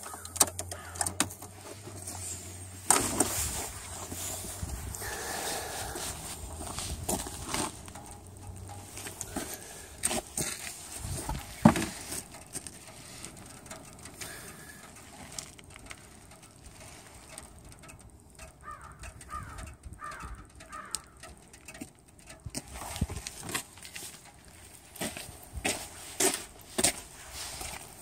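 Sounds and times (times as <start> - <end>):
low outdoor background noise: 0.0 - 28.0.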